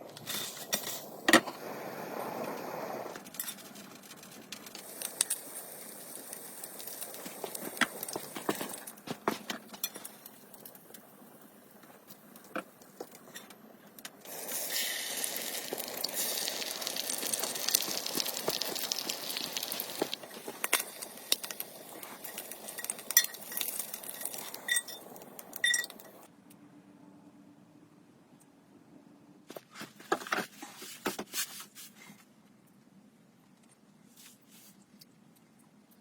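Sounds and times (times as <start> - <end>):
steady hiss: 0.0 - 9.2, 14.2 - 26.3
metal and glass cookware clinks: 22.2 - 26.2.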